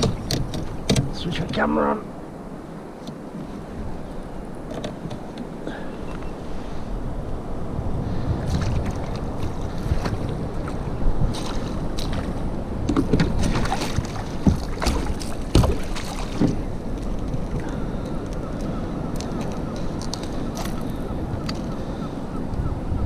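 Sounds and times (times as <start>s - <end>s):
wind buffeting microphone: 0.0s - 23.0s
knocks against kayak: 11.4s - 16.6s.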